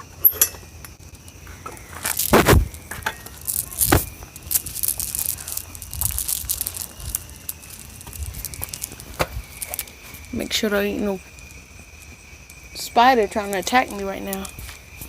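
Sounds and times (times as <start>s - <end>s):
high insect drone: 0.0s - 15.0s
crackling crunching rustle: 0.7s - 15.0s
heavy thumps: 2.2s - 5.0s.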